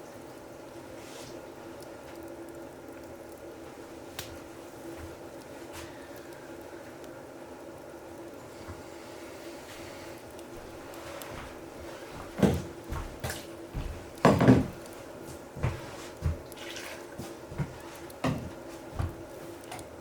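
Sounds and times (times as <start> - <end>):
knocks of objects being handled: 12.2 - 16.5, 17.2 - 19.9.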